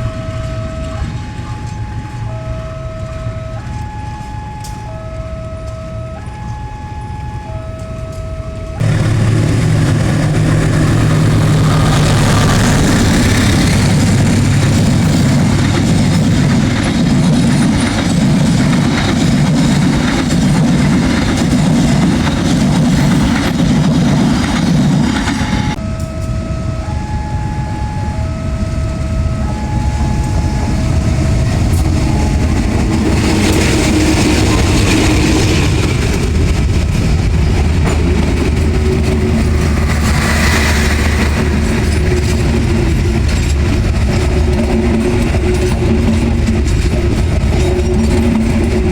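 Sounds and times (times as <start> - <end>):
diesel locomotives rumbling: 0.0 - 48.9
train wheels clacking over rail joints: 8.8 - 25.8, 30.0 - 48.9.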